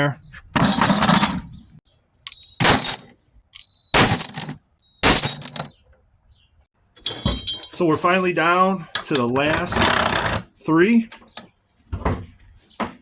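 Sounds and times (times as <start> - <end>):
metal scrap clanking: 0.6 - 1.6, 2.3 - 5.7.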